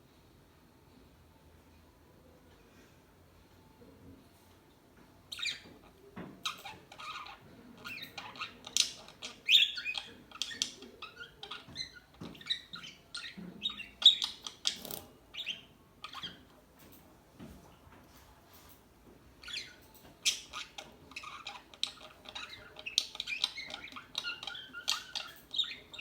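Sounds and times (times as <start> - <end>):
parakeets chirping and squawking: 5.3 - 5.8, 6.4 - 16.5, 19.4 - 26.0.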